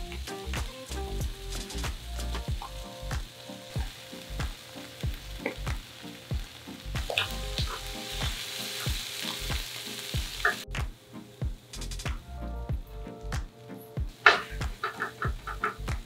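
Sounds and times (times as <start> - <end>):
onions sizzling in frying pan: 0.0 - 10.7.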